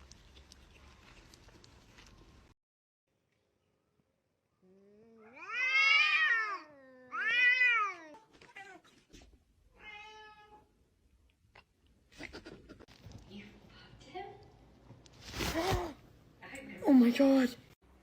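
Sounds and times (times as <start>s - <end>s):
cat meowing: 5.1s - 8.9s, 9.8s - 10.7s.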